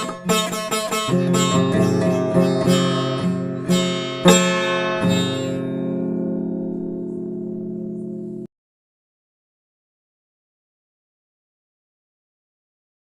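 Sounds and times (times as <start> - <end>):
guitar picked notes: 0.0 - 8.5
guitar strummed chords: 0.0 - 8.5.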